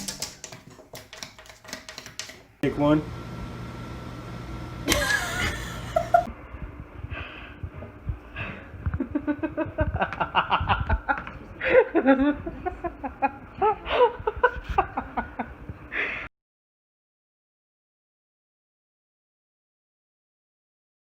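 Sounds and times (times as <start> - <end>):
person laughing: 4.9 - 6.3, 8.9 - 15.6.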